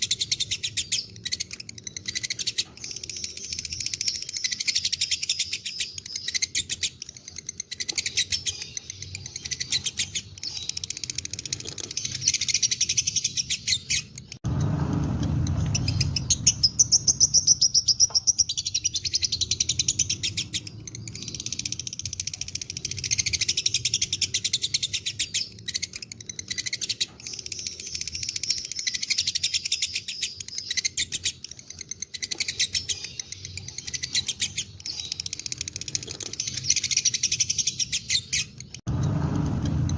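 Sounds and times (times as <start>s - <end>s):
low rumble: 14.4s - 17.4s, 38.9s - 39.9s.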